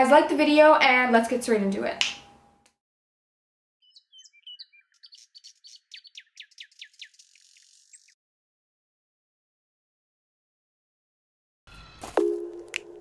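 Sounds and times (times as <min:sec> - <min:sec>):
songbirds chirping: 0:03.8 - 0:08.2.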